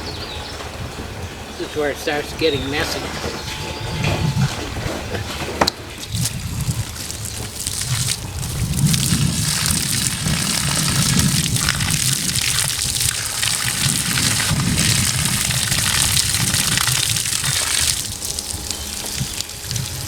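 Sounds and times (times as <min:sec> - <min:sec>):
water pouring and splashing into pipe: 0:05.8 - 0:20.0.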